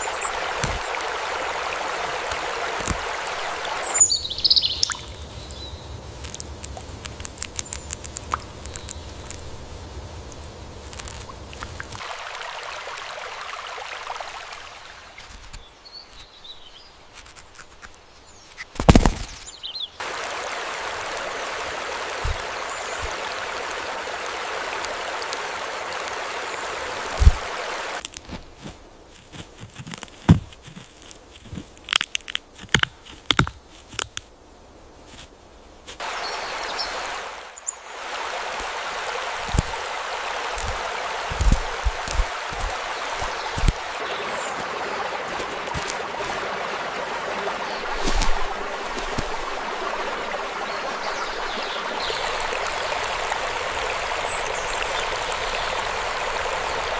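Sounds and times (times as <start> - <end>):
rushing water: 0.0 - 34.3, 34.9 - 56.9
rustling: 27.1 - 34.4, 35.0 - 36.1, 39.4 - 46.5, 47.8 - 50.2.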